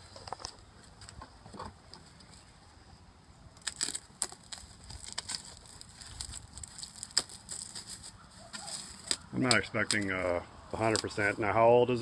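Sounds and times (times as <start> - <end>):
clicks and crackles of handling: 0.0 - 2.3, 3.6 - 11.4.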